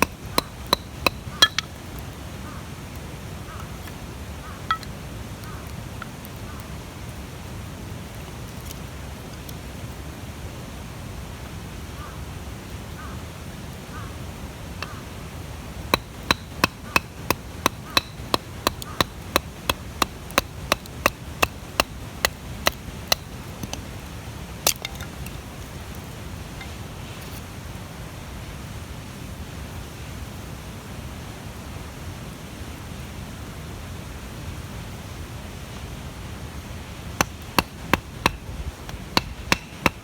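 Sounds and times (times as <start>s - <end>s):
wood being chopped: 0.0s - 1.8s, 4.7s - 4.9s, 15.9s - 23.9s, 24.6s - 25.3s, 37.2s - 40.0s.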